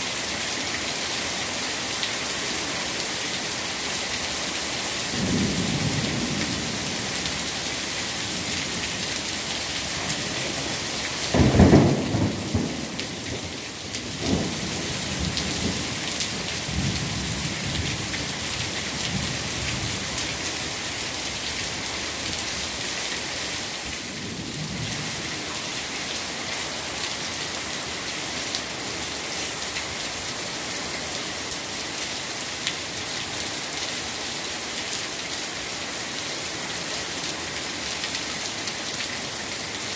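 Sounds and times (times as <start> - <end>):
heavy rain falling: 0.0 - 39.9
thunder rumbling: 5.2 - 7.6, 11.3 - 13.5.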